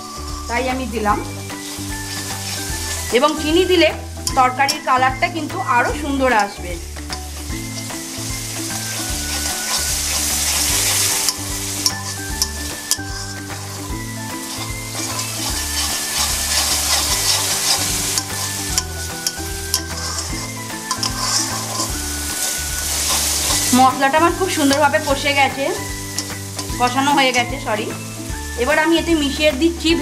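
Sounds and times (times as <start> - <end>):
paste sizzling in oil: 0.0 - 30.0
spatula tapping and scraping pan: 8.7 - 23.7.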